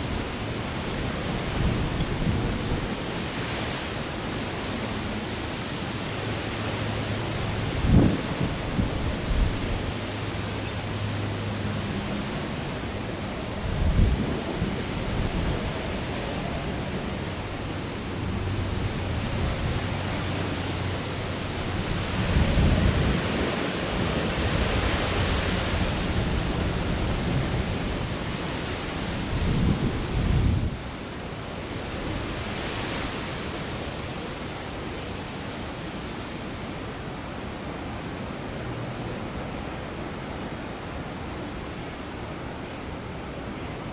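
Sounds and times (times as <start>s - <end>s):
gusty wind on microphone: 0.0s - 35.0s.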